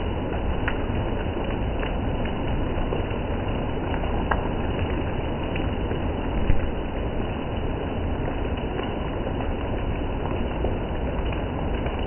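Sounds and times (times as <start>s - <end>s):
steady rain hiss: 0.0s - 12.0s
raindrop taps: 0.2s - 12.0s.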